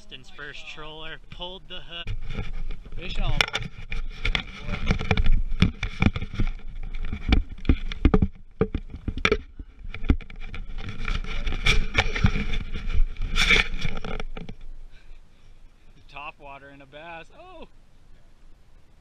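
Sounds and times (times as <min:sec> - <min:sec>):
knocks and clicks: 0:03.3 - 0:11.2.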